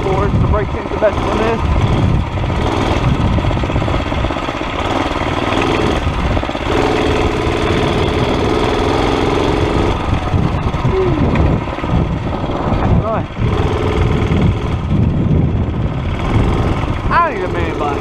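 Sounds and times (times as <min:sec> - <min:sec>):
mini bike engine running: 0:00.0 - 0:18.0.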